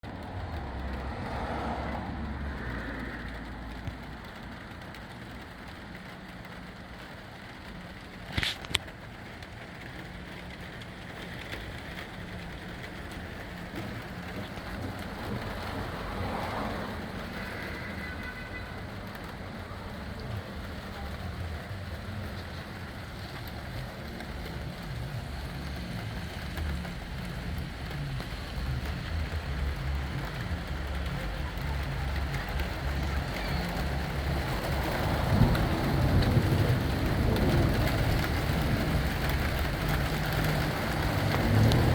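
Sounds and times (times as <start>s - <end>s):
rain falling: 0.0s - 41.9s
wind buffeting microphone: 33.9s - 41.9s.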